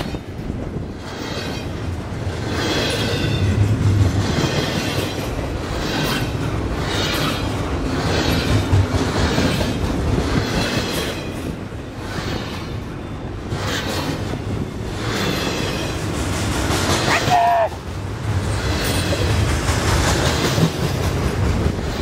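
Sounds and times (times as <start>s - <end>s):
steel wheels rumbling on rail: 0.0s - 22.0s
wheels clattering over rail joints: 18.0s - 22.0s.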